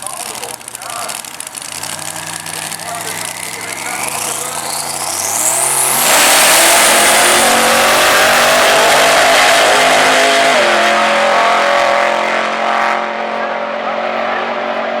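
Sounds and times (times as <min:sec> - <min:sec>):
turbo whine: 0:00.0 - 0:10.6
drag car engine at full throttle: 0:00.0 - 0:15.0.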